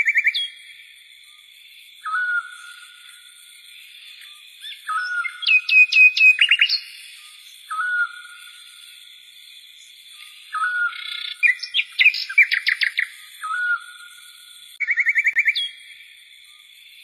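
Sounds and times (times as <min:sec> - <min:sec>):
birds chirping: 0:04.0 - 0:08.7, 0:09.8 - 0:14.0.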